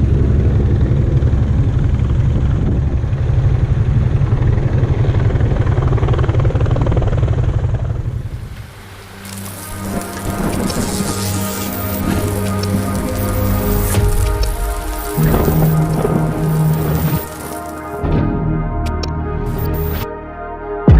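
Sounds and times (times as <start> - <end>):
low pulsing machine rumble: 0.0 - 20.1
hiss like rain: 8.0 - 18.0, 19.5 - 20.0
music: 8.6 - 20.9.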